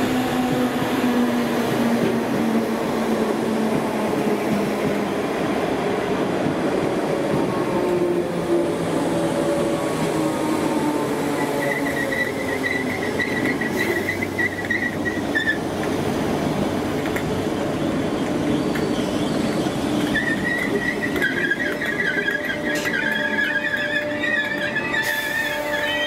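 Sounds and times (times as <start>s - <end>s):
electric train rumble and rattle: 0.0s - 26.0s
high-pitched wheel squeal: 11.4s - 15.6s, 20.0s - 26.0s.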